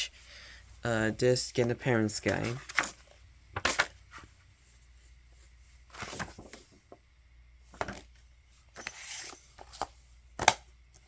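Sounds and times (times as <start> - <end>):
dvd case rustling and clicking: 7.8 - 11.0.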